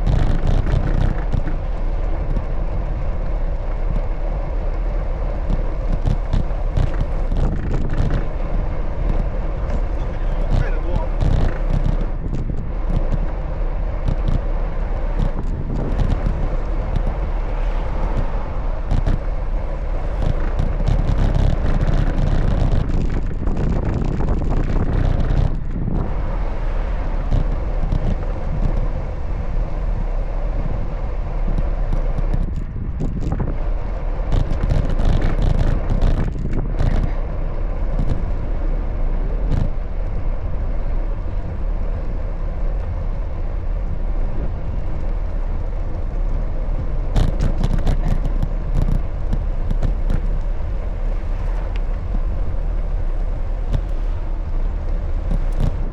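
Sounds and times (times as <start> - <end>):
small rattles and knocks: 0.0 - 3.3, 5.4 - 13.3, 15.2 - 19.3, 34.3 - 37.2, 47.1 - 55.9
traffic: 0.0 - 55.9
wind and road noise: 0.0 - 55.9.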